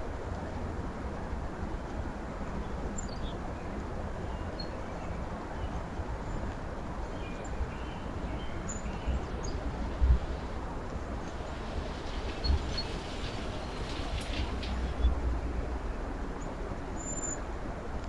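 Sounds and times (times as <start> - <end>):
low outdoor rumble: 7.6 - 18.0.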